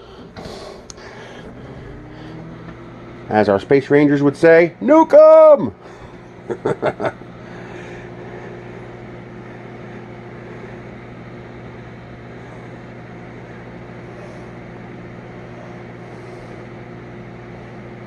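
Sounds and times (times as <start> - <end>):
microwave oven humming: 0.0 - 18.0.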